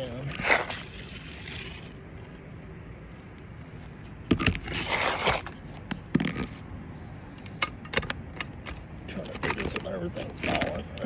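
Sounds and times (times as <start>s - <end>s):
rough scraping: 0.0s - 2.0s, 4.3s - 6.7s.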